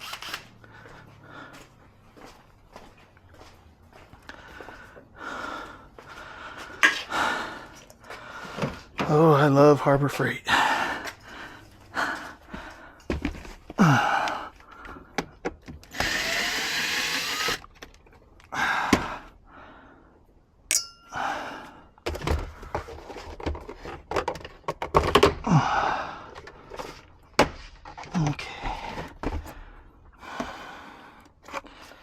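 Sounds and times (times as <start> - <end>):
steady whirring: 15.9 - 17.7.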